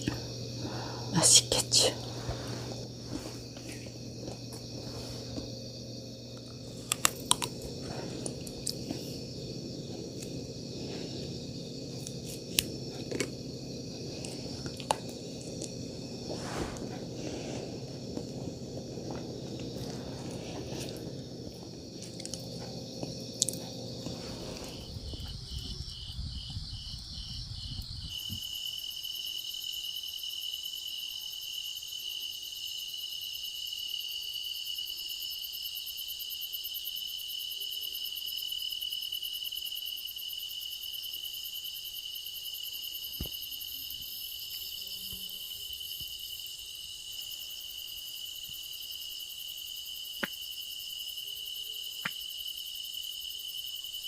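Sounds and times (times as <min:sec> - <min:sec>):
low noise: 0:00.0 - 0:25.8
insects chirping: 0:00.0 - 0:54.0.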